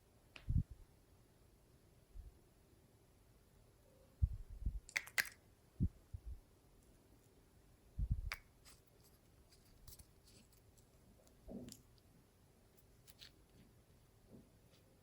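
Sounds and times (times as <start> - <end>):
crackly pops and clicks: 4.8 - 5.4, 8.1 - 12.1.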